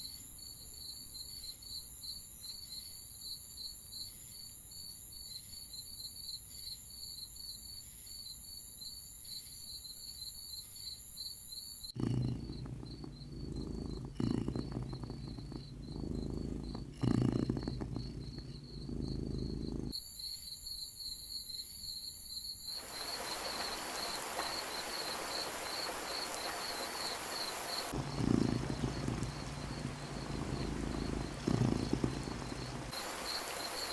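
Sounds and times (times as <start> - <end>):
steady rushing hiss: 12.0 - 19.9, 22.8 - 33.9
crickets chirping: 12.0 - 33.9
low rumbling with deep booms: 28.0 - 33.0.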